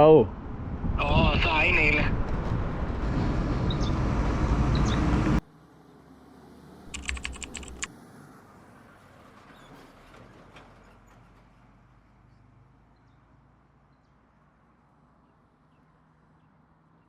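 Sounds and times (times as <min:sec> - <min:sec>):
wind and road noise: 0:00.0 - 0:17.0
small clicks: 0:06.9 - 0:07.9.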